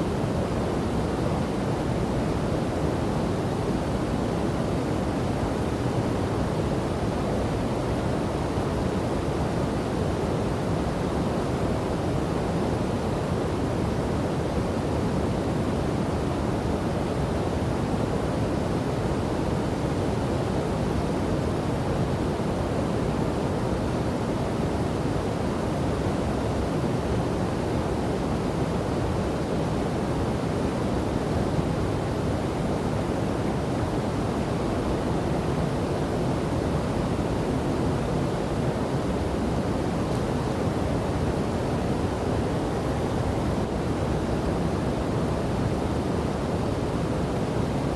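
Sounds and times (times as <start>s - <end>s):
waterfall and river roaring: 21.3s - 47.9s.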